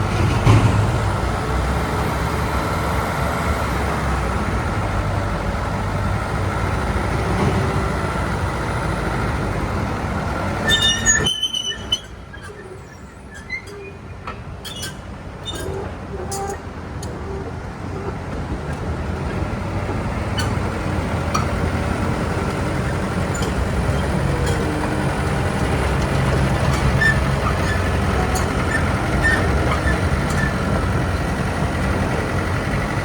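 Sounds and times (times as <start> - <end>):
diesel engine drone with whine: 0.0 - 33.0
high metallic squeals: 10.6 - 18.1, 20.2 - 21.6, 22.7 - 30.8.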